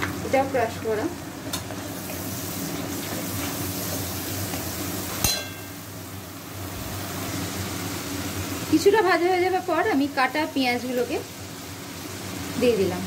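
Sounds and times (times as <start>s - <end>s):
food sizzling in hot oil: 0.0s - 13.0s
sharp metallic clink: 5.2s - 5.7s.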